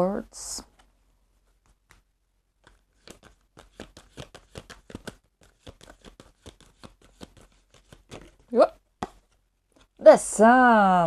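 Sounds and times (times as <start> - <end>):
cards being shuffled: 1.6 - 10.0.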